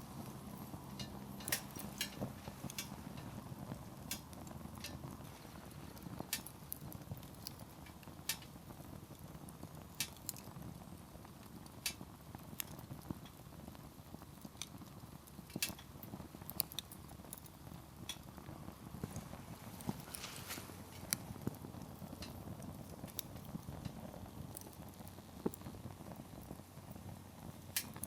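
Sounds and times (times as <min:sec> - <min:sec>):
low steady rumble: 0:00.0 - 0:10.0
campfire crackling: 0:00.0 - 0:28.0.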